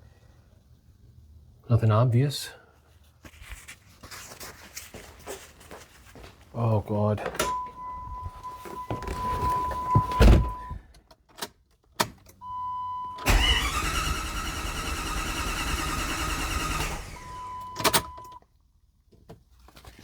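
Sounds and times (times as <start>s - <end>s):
starter motor cranking engine: 13.2s - 18.2s.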